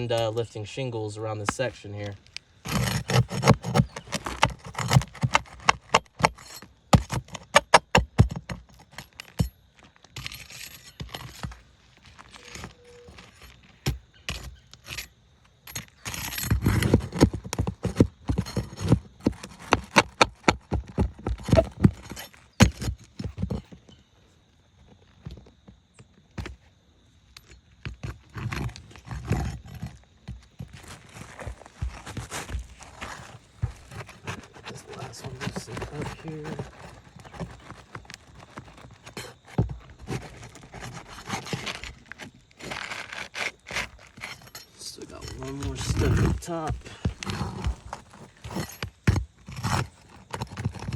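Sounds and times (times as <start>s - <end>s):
tool scraping: 1.4s - 23.9s, 27.9s - 50.9s
shingles knocking: 1.5s - 10.4s, 28.5s - 50.9s.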